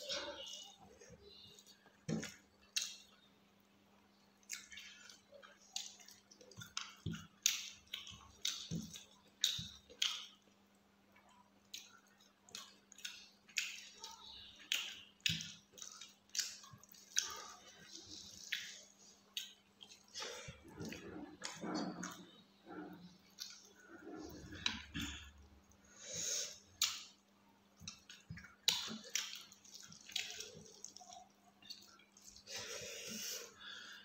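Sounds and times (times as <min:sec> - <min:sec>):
faint low hum: 0:00.0 - 0:34.0
wet chewing and lip smacks: 0:01.6 - 0:03.2, 0:04.4 - 0:33.6.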